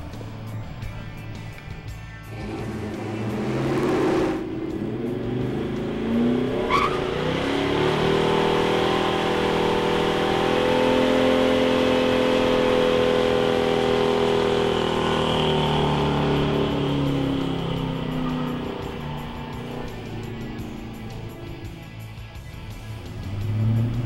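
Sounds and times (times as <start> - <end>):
car engine at high revs: 2.3 - 24.0
tyre squeal: 6.5 - 7.3.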